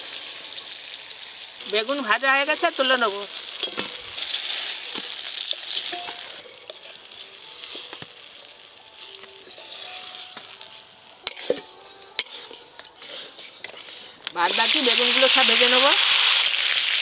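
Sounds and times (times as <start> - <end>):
eggplant sizzling in oil: 0.0 - 17.0
metal spatula clinking on pan: 5.8 - 6.4.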